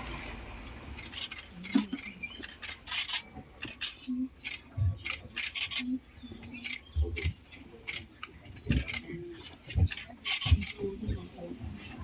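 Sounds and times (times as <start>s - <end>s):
sharp clicks and rattles: 1.0s - 5.9s.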